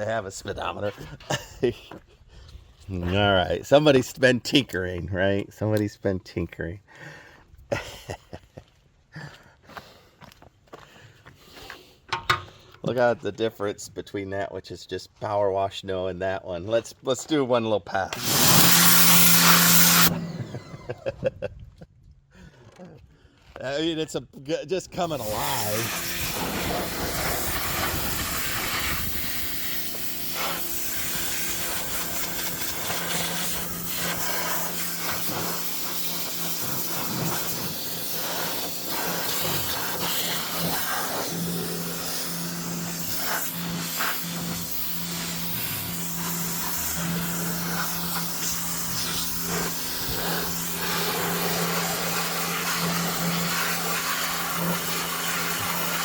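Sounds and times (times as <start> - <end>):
water jet hissing: 18.1 - 20.2, 25.1 - 56.0
pressure washer motor hum: 18.1 - 20.6, 25.0 - 56.0.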